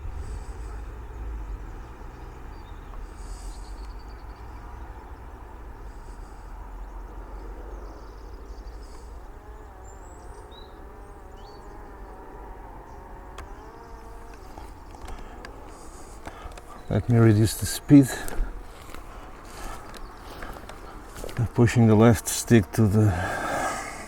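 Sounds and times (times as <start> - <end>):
wind rumble on microphone: 0.0 - 2.9.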